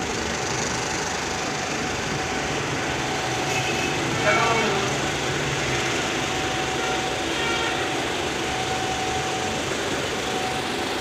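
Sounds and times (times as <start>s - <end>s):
car engine idling: 0.0s - 5.6s.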